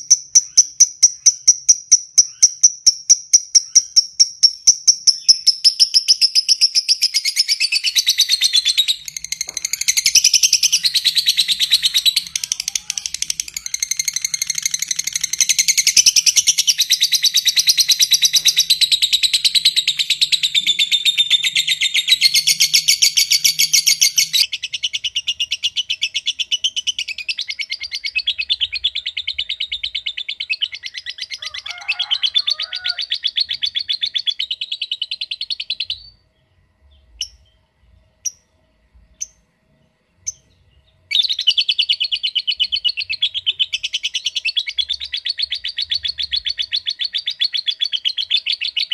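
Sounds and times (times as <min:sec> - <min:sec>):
lovebird chattering trill: 0:00.0 - 0:36.1.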